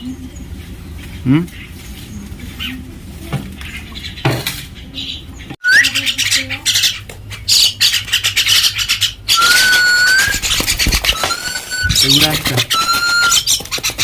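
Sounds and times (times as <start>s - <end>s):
short rising whistle: 5.6s - 5.9s, 9.4s - 10.4s, 11.1s - 12.0s.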